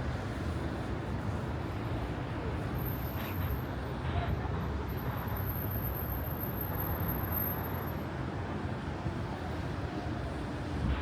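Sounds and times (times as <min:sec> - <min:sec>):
low rumble of city traffic: 0:00.0 - 0:11.0.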